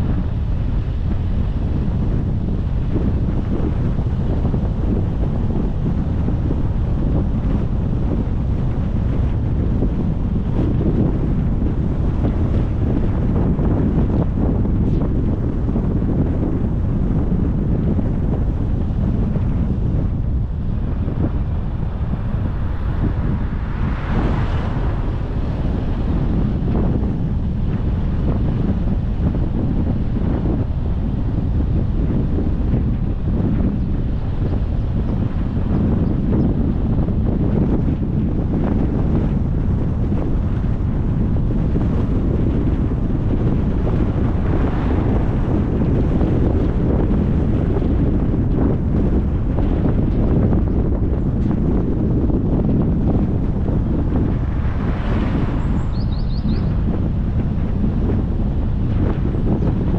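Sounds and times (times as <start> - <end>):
low rumble of car and road: 0.0 - 59.9
wind buffeting microphone: 0.0 - 59.9
car road noise: 20.4 - 28.4.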